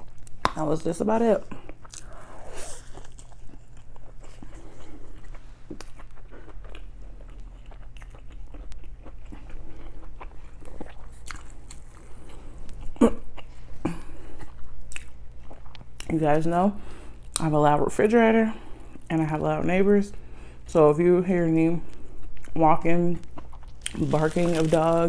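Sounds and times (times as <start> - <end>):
chewing and biting food: 1.5 - 16.1, 23.2 - 25.0.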